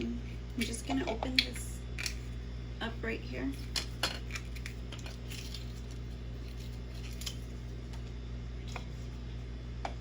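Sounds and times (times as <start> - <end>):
steady low hum: 0.0 - 10.0
food packaging crinkling: 3.6 - 8.1.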